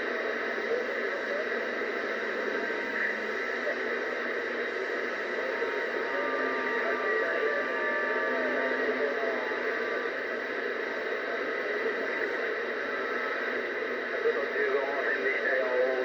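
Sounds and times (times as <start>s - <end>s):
faint garbled radio voices: 0.0s - 16.0s
radio static hiss: 0.0s - 16.0s
thin steady whistle: 5.2s - 10.0s.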